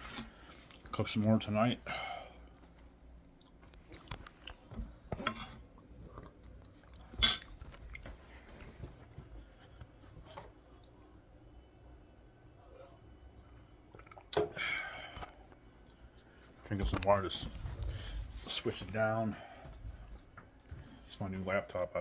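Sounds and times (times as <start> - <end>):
faint chewing: 2.6 - 9.9.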